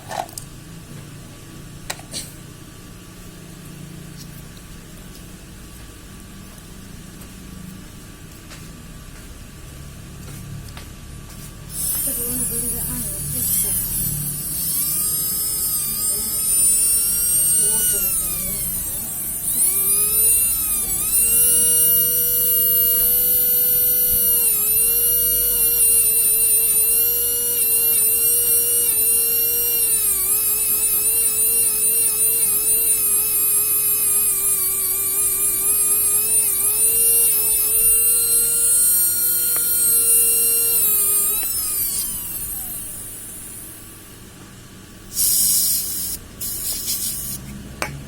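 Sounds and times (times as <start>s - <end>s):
small electric motor whining: 11.7s - 44.2s, 45.0s - 47.5s.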